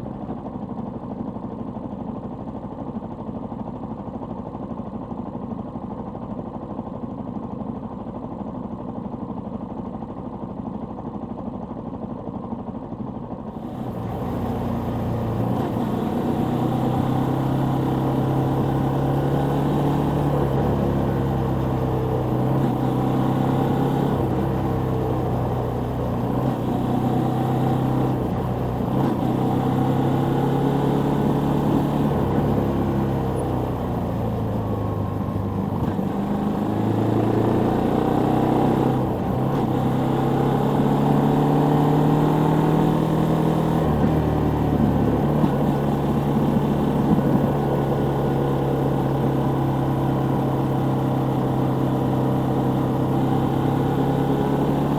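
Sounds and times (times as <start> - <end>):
motorcycle engine revving: 13.6 - 54.9.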